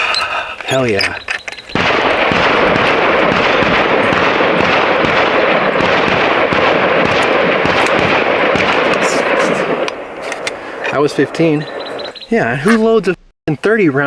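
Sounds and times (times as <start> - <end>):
air rifle rapid shots: 1.6 - 12.8.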